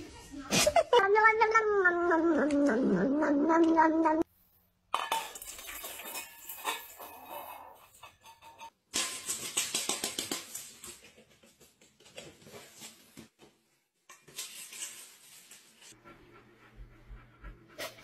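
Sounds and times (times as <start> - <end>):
dry cat food rattling in metal bowl: 5.0 - 11.0.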